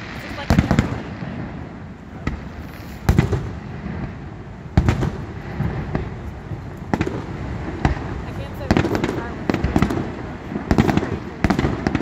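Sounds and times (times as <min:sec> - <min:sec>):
firework shells booming: 0:00.0 - 0:12.0
small firework pops: 0:02.2 - 0:04.2.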